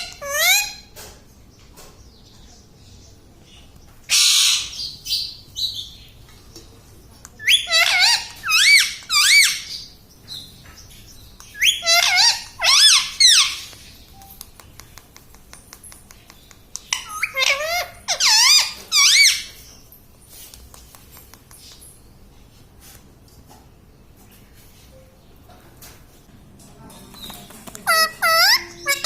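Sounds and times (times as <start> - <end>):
parrot squawking: 0.0 - 0.9, 4.1 - 4.9, 7.4 - 9.8, 11.6 - 13.7, 16.9 - 19.6, 27.7 - 29.0.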